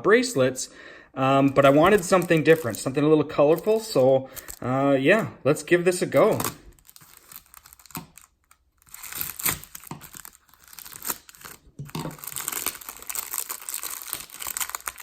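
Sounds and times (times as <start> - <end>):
packaging tearing and crinkling: 1.6 - 4.6, 6.2 - 15.0.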